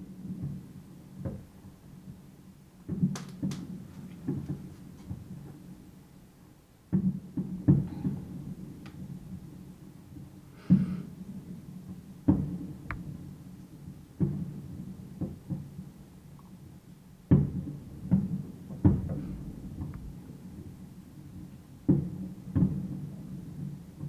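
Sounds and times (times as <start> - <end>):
fireworks booming with echo: 7.0 - 16.0, 17.3 - 24.0.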